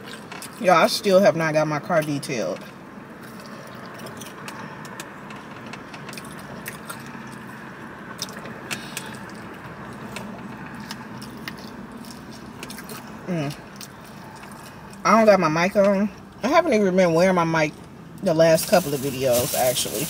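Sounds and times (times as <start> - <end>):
chewing: 0.0 - 0.6, 3.2 - 5.4, 6.0 - 15.0
car interior hum: 0.0 - 20.0.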